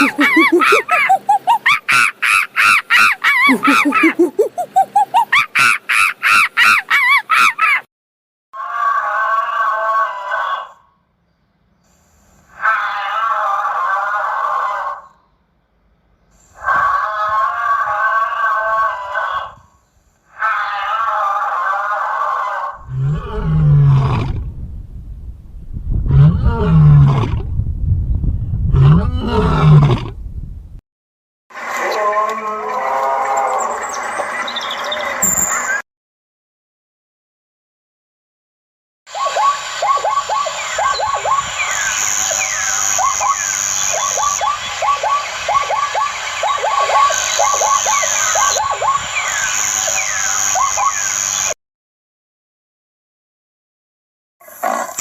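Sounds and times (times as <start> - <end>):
shorter higher animal call: 0.0 - 6.8
birds calling: 0.0 - 7.8, 39.1 - 51.6
large animal deep calls: 22.4 - 24.6, 26.0 - 27.5, 28.7 - 30.2
faint falling chirps: 35.2 - 35.8.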